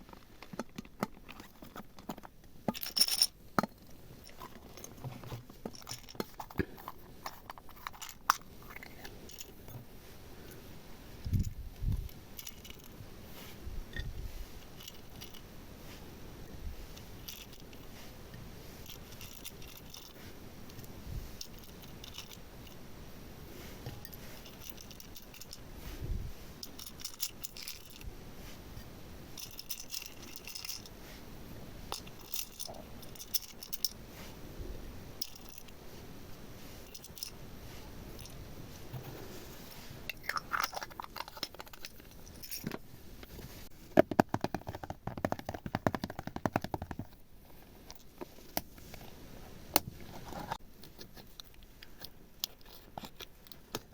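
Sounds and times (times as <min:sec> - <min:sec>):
small beads clicking and rattling: 0:18.8 - 0:20.2, 0:21.4 - 0:22.8, 0:26.6 - 0:28.0, 0:29.4 - 0:30.9.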